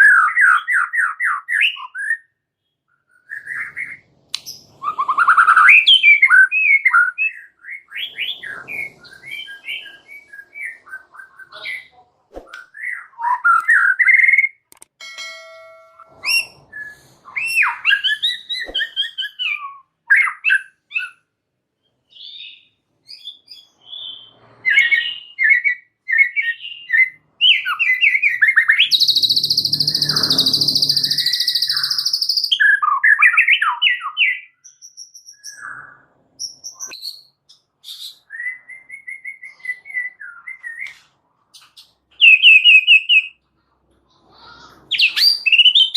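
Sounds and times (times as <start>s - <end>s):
bird singing whistled phrases: 16.2s - 21.2s, 22.1s - 40.9s, 44.9s - 45.9s.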